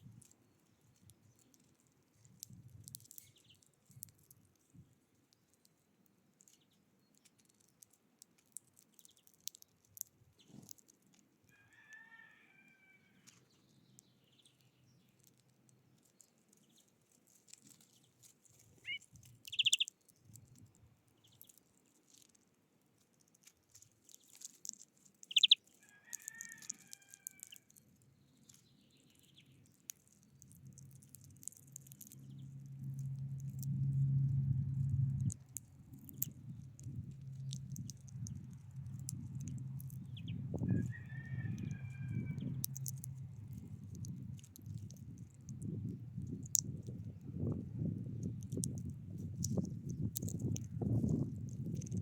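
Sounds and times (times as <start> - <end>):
soft chattering bird calls: 17.8 - 19.9, 25.2 - 26.8, 36.0 - 43.0
sharp high bird calls: 18.8 - 19.9, 25.3 - 25.6
faint ticks and taps: 23.7 - 27.8.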